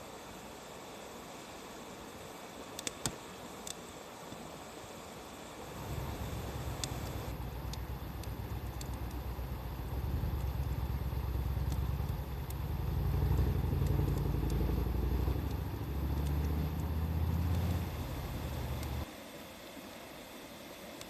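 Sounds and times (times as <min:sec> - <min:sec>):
wood fire crackling: 0:02.7 - 0:04.4, 0:05.6 - 0:19.1
loud low rumble: 0:05.7 - 0:19.0.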